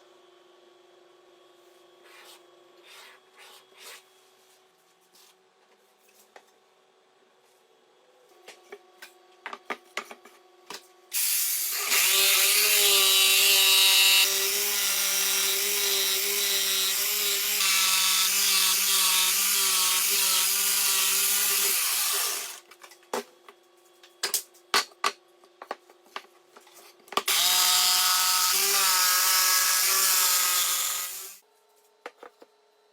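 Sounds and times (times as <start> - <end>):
electric power tool whining: 27.3 - 31.4.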